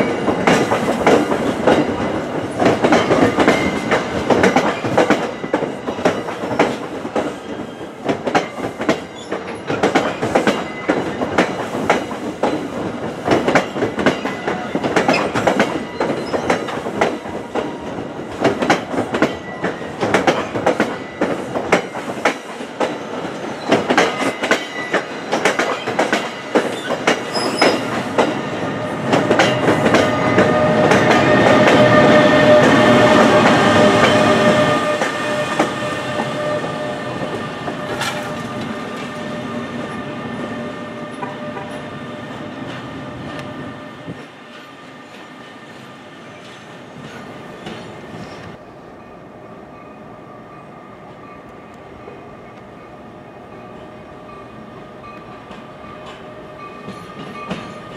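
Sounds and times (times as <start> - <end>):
train wheels clickety-clack: 0.0 - 48.6, 54.4 - 57.9.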